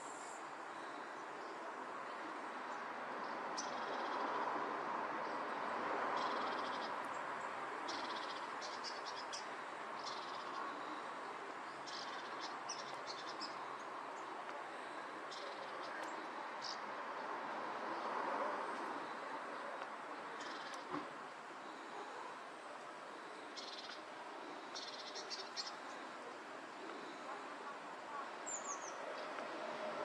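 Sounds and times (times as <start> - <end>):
rushing outdoor background: 0.0 - 30.0
small birds trilling: 11.6 - 14.3, 23.3 - 26.1.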